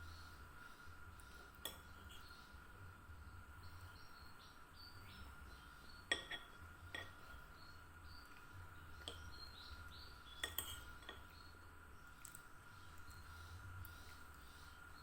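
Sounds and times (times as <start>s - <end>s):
faint steady hum: 0.0s - 15.0s
kitchenware clinking: 6.1s - 7.2s, 10.4s - 11.2s.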